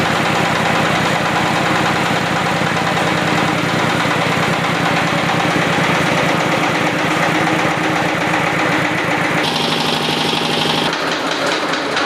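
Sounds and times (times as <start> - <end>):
diesel engine running: 0.0 - 11.2.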